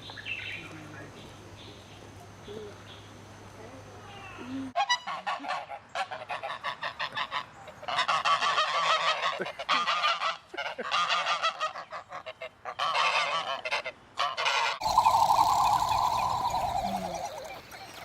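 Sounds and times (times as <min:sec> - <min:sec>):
geese honking: 0:04.8 - 0:18.0.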